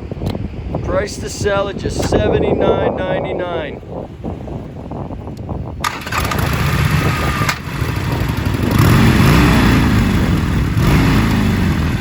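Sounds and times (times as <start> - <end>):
motorcycle engine revving: 5.8 - 12.0.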